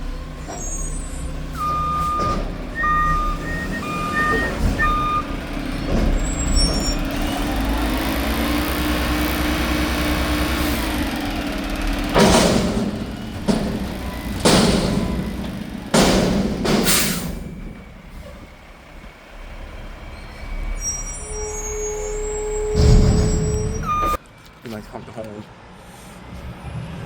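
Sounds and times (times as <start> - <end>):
truck engine revving: 0.0 - 24.2
truck reversing alarm beeping: 0.5 - 12.1, 13.0 - 16.0, 16.9 - 24.2
loud bang: 22.8 - 23.9.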